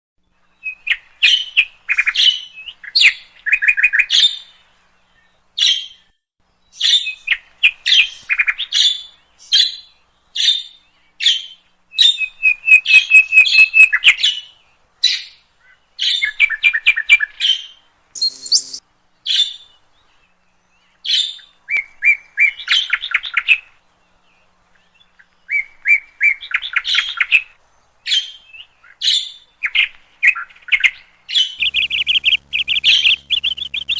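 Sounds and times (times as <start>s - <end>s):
budgerigars chirping: 18.2s - 18.8s, 31.6s - 33.9s
harsh bird note: 31.6s - 33.9s.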